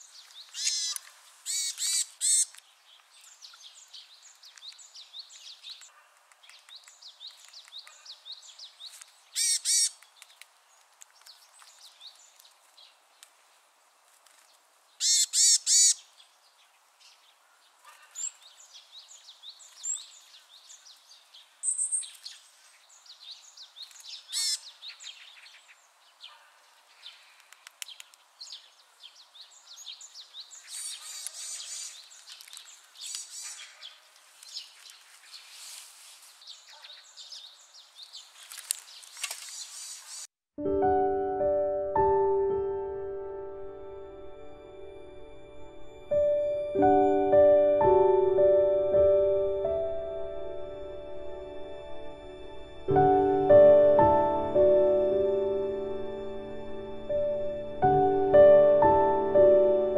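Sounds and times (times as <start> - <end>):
loud sharp bird calls: 0.0 - 2.6, 9.3 - 10.0, 15.0 - 16.2, 23.9 - 28.6, 29.5 - 32.2.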